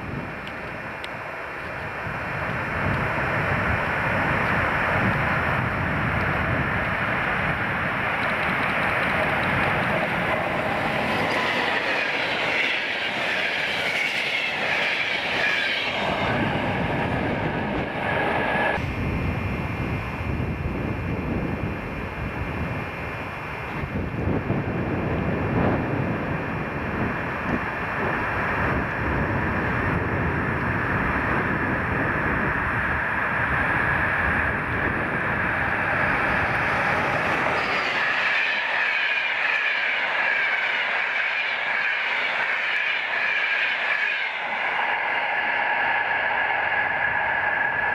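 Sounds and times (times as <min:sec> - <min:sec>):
train wheels rumbling on rail: 0:00.0 - 0:47.9
high-pitched ringing squeal: 0:10.8 - 0:18.7, 0:35.3 - 0:47.9.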